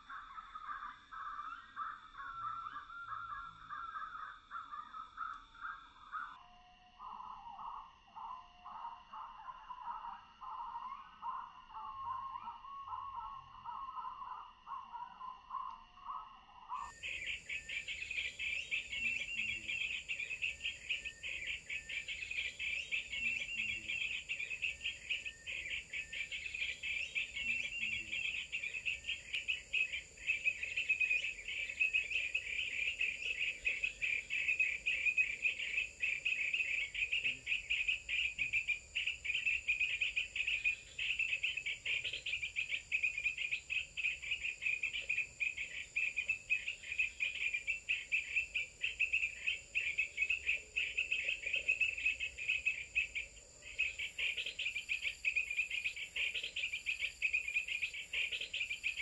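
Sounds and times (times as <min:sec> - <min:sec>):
rapid insect trilling: 0:16.8 - 0:59.0.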